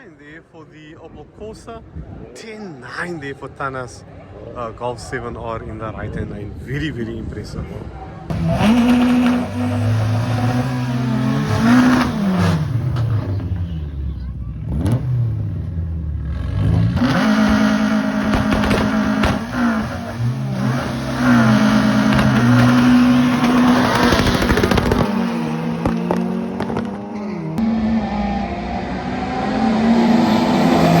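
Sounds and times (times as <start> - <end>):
racing car engines at full throttle: 8.2 - 31.0
exhaust cracks: 16.3 - 27.6.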